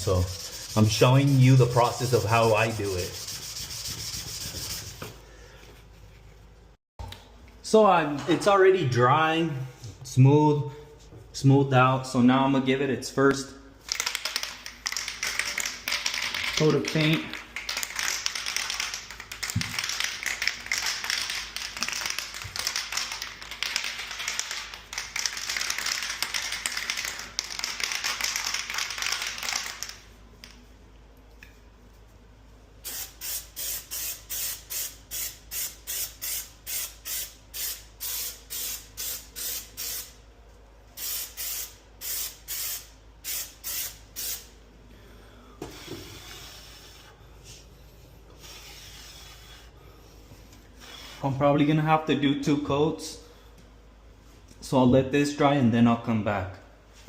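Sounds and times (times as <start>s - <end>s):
spray paint can hissing: 32.8s - 40.2s, 41.0s - 44.5s.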